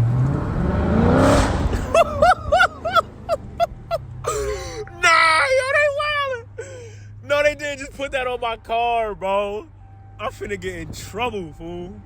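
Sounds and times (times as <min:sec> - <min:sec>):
car engine idling and revving: 0:00.0 - 0:12.0
short pitched yelps: 0:04.3 - 0:06.4.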